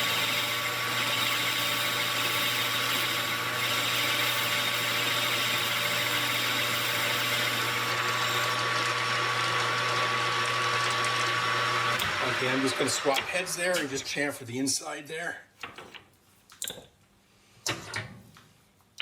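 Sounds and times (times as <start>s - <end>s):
metal lathe motor hum: 0.0s - 13.3s.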